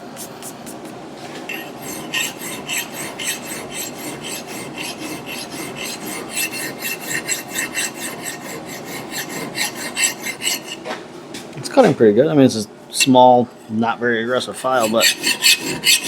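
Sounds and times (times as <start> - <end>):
hand file rasping on steel: 1.5 - 10.9, 13.0 - 16.0.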